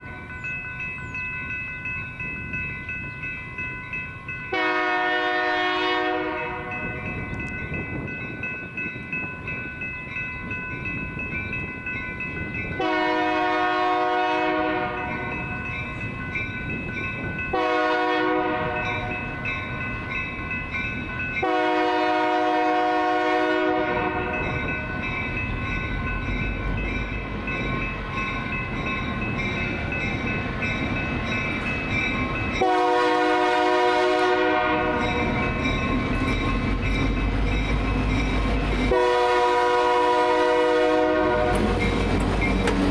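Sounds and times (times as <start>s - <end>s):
bell ringing: 0.0s - 4.7s, 6.4s - 12.9s, 14.9s - 17.7s, 18.7s - 21.6s, 24.2s - 32.8s, 34.8s - 39.0s
locomotive horn blasts: 4.5s - 7.0s, 12.8s - 15.2s, 17.5s - 19.2s, 21.4s - 24.5s, 32.6s - 35.3s, 38.9s - 41.9s
locomotive engine rumble: 6.1s - 42.9s.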